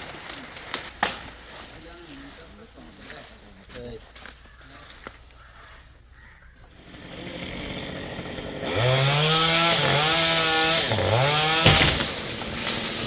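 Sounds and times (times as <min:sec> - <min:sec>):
chainsaw revving: 0:06.7 - 0:13.0.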